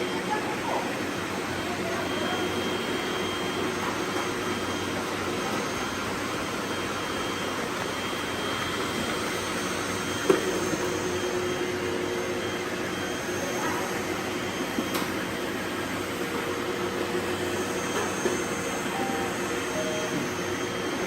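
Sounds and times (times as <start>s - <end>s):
robot vacuum whirring: 17.1s - 21.0s.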